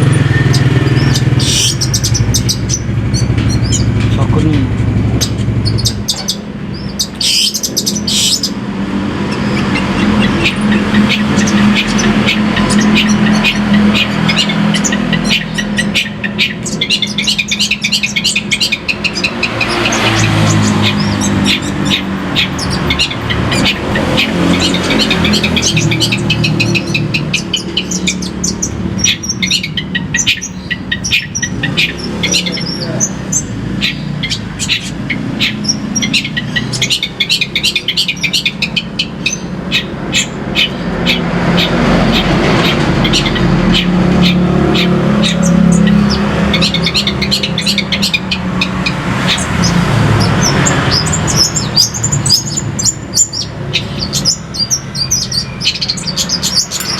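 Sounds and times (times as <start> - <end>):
vehicle engine rumble: 0.0 - 37.1
bird singing sharp chattering notes: 0.0 - 56.9.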